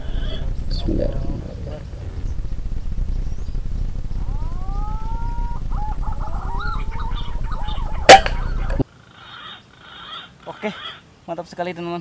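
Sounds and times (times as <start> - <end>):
low rumble on microphone: 0.0 - 8.8
bird whistled call: 4.2 - 8.8.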